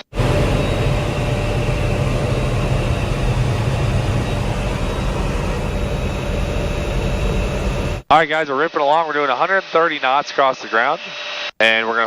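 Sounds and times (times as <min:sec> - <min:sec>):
helicopter engine and rotor drone: 0:00.0 - 0:08.0
faint high whine: 0:00.0 - 0:11.5.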